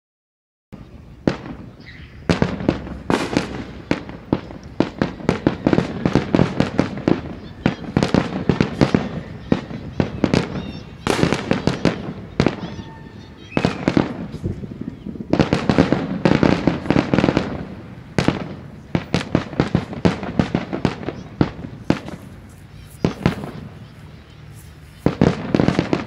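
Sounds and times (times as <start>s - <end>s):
fireworks shells bursting: 1.3s - 26.0s.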